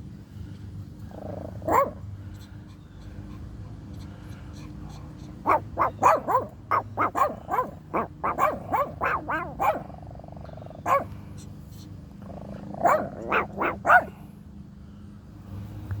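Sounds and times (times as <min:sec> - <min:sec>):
small dog yapping: 0:01.5 - 0:02.0, 0:05.3 - 0:10.0, 0:10.7 - 0:11.1, 0:12.5 - 0:14.1.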